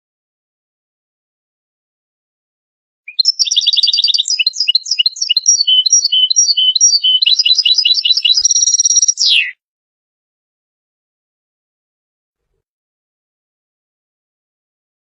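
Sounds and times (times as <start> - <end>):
goldfinch twittering song: 3.1 - 9.6.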